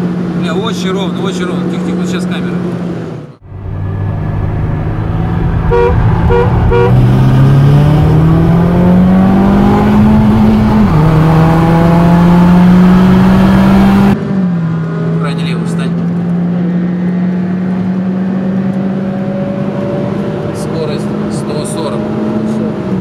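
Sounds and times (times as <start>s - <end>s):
car engine accelerating: 0.0s - 23.0s
car horn toots: 5.6s - 7.1s.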